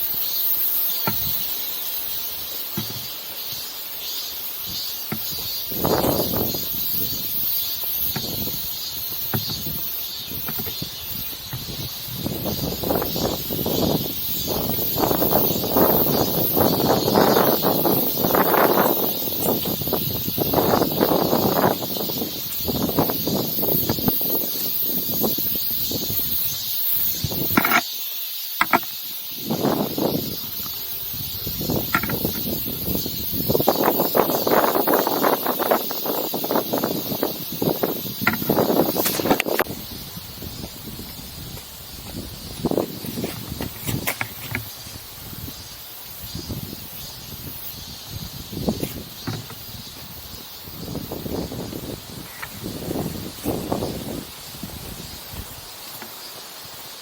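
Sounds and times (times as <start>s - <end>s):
wind gusting over microphone: 1.0s - 1.6s, 4.6s - 27.8s, 28.6s - 55.8s
light knocks: 2.8s - 3.1s.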